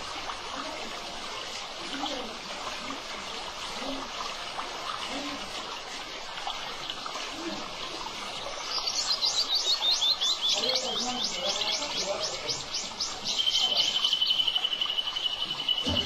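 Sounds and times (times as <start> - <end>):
songbird singing rapid high notes: 8.6 - 16.0
high even bird trill: 8.7 - 16.0.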